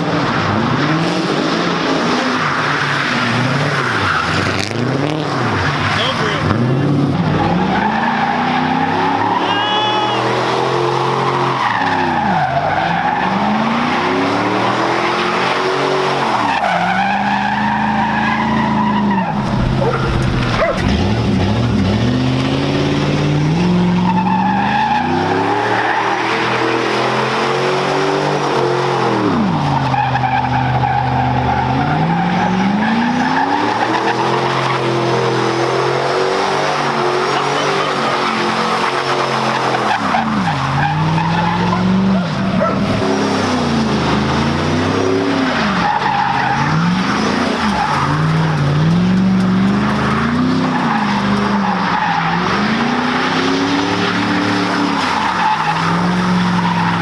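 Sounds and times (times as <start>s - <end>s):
car engine revving: 0.0s - 57.0s
tyres squealing: 7.4s - 13.6s, 36.8s - 43.1s.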